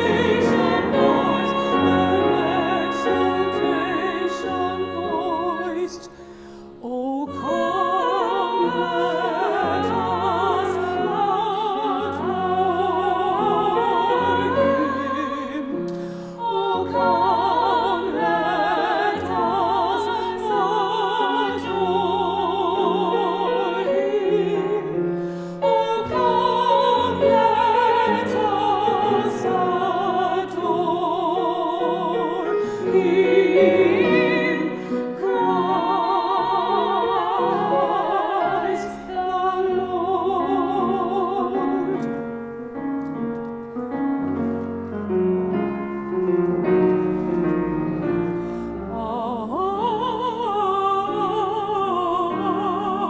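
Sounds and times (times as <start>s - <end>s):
two women singing operatic duet: 0.0s - 43.2s, 47.0s - 53.0s
piano accompaniment: 0.0s - 53.0s.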